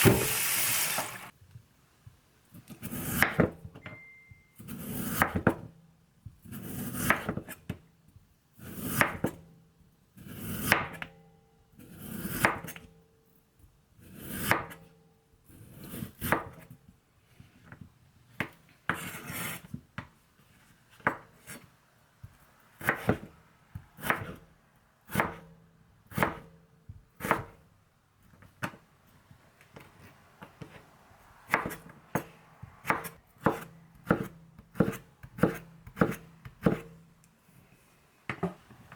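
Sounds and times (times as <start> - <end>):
knife cutting on cutting board: 18.9 - 19.7, 31.5 - 36.9.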